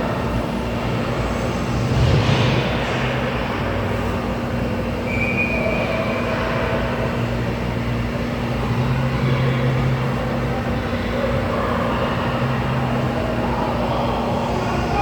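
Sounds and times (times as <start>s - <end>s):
continuous rumbling noise: 0.0s - 15.0s
arena low hum: 10.9s - 15.0s.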